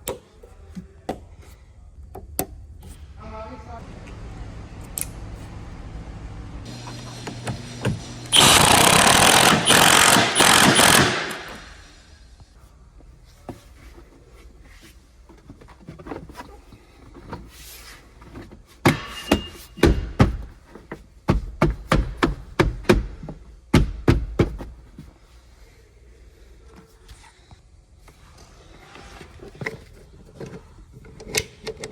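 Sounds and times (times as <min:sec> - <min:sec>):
cordless power tool bursts: 0:08.0 - 0:12.0.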